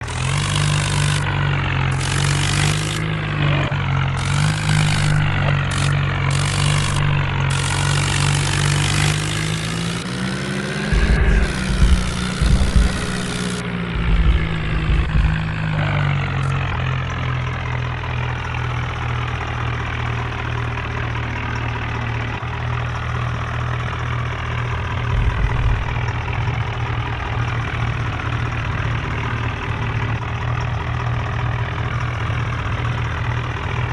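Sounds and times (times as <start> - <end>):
diesel tractor engine running: 0.0 - 33.9
low thuds: 10.9 - 16.8, 25.1 - 26.4.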